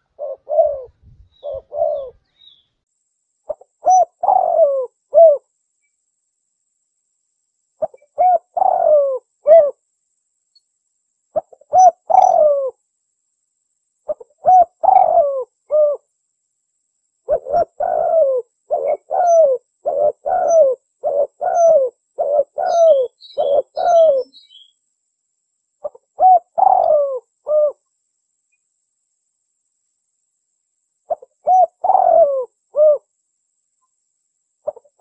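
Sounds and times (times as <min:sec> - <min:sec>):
dove cooing: 0:00.0 - 0:02.2, 0:03.5 - 0:05.4, 0:07.8 - 0:09.8, 0:11.4 - 0:12.8, 0:14.1 - 0:16.0, 0:17.3 - 0:24.6, 0:25.8 - 0:27.8, 0:31.1 - 0:33.1, 0:34.6 - 0:35.0
small bird chirps: 0:00.0 - 0:06.0, 0:07.8 - 0:09.8, 0:11.3 - 0:12.8, 0:14.0 - 0:16.1, 0:17.2 - 0:24.9, 0:25.8 - 0:28.7, 0:31.0 - 0:33.1, 0:34.6 - 0:35.0.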